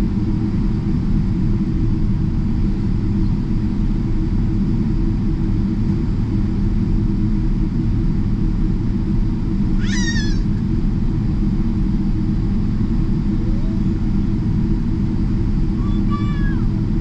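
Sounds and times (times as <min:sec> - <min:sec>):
airplane cabin rumble: 0:00.0 - 0:17.0
short high-pitched cry: 0:09.8 - 0:10.5, 0:15.8 - 0:16.7.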